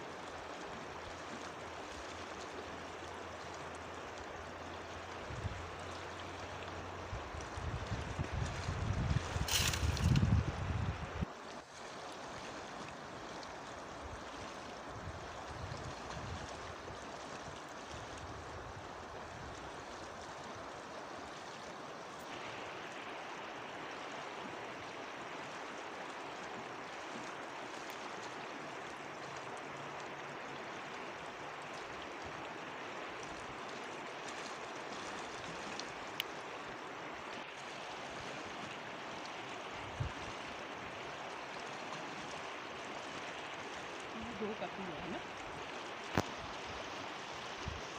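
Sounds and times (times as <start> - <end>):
river rushing: 9.2 - 15.5, 18.6 - 47.9.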